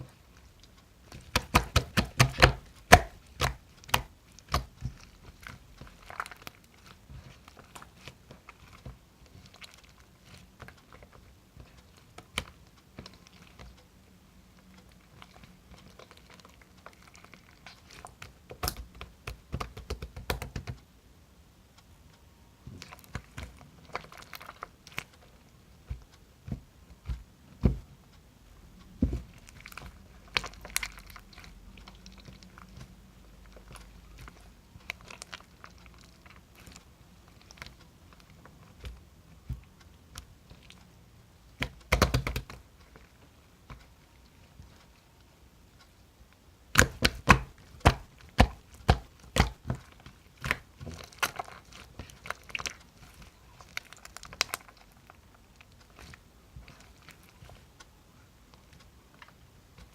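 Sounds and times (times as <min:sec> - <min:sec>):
sticky chewing: 0:22.7 - 0:45.2, 0:46.7 - 0:59.9.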